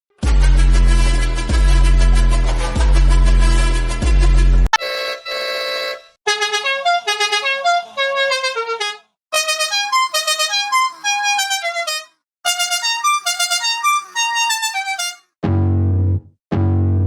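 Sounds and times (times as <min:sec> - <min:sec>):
ice cream truck jingle: 0:04.8 - 0:06.2, 0:09.4 - 0:15.2.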